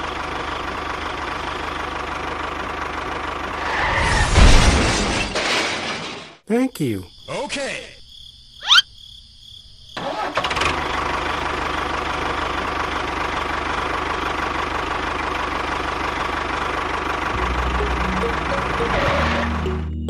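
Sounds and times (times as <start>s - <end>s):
small engine running: 10.2s - 19.8s
rising chirp: 17.4s - 20.0s.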